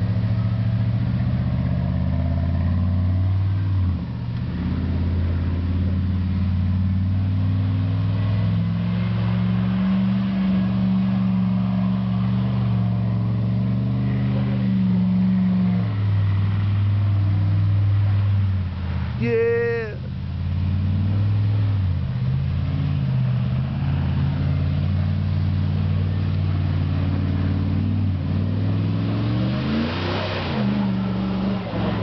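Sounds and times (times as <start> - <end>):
truck engine revving: 0.0 - 32.0.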